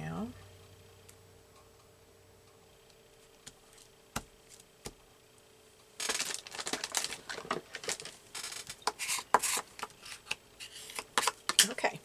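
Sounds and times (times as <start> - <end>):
paper rustling and crinkling: 6.0 - 11.0.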